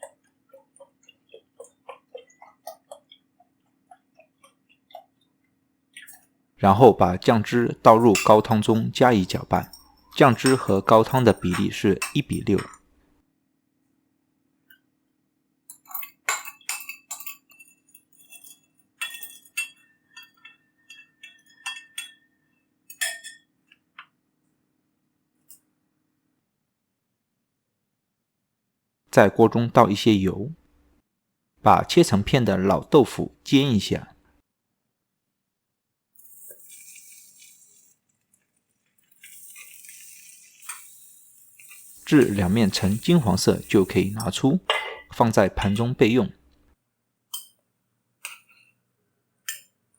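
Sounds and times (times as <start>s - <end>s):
spoon clinking against bowl: 7.9s - 12.8s, 15.7s - 23.5s, 39.1s - 45.1s, 47.3s - 47.6s
tofu sizzling in oil: 39.5s - 44.2s.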